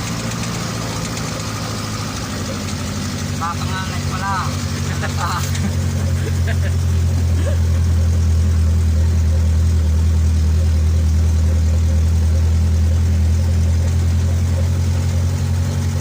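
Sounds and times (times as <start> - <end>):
truck engine droning: 0.0 - 16.0.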